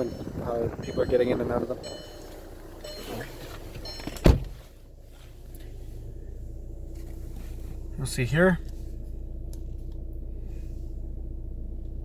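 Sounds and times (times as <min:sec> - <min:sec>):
car door shutting: 0:02.1 - 0:04.8.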